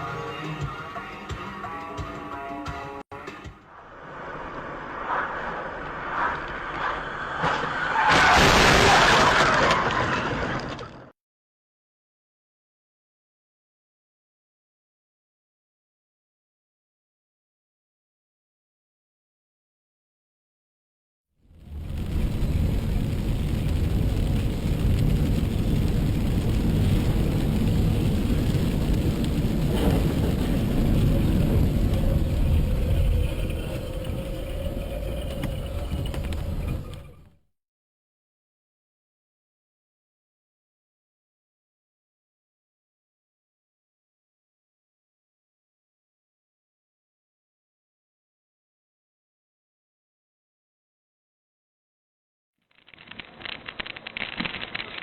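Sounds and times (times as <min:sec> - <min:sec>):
car road and tyre noise: 0:03.2 - 0:09.8, 0:21.5 - 0:37.4
tyres skidding: 0:22.0 - 0:37.3.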